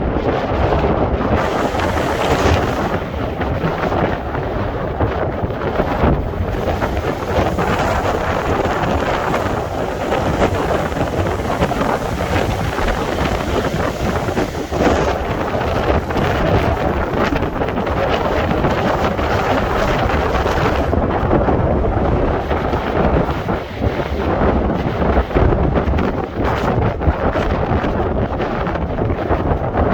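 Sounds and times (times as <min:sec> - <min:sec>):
wind buffeting microphone: 0:00.0 - 0:29.9
stormy sea surf breaking: 0:00.6 - 0:21.1.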